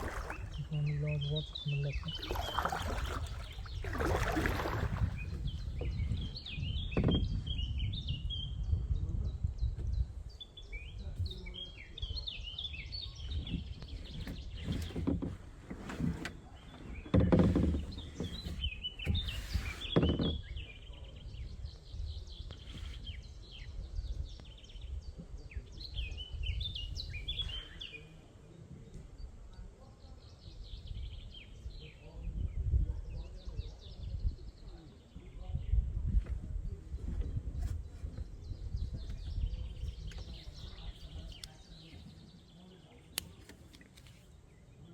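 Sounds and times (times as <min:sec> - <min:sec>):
small birds chirping: 0:00.0 - 0:15.4, 0:16.1 - 0:44.9.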